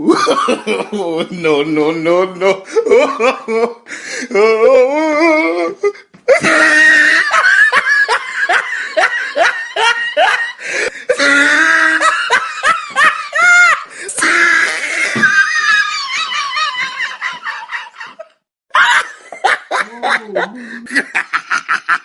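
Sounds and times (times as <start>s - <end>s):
people laughing hard: 0.0s - 1.4s, 2.4s - 3.9s, 6.3s - 22.0s.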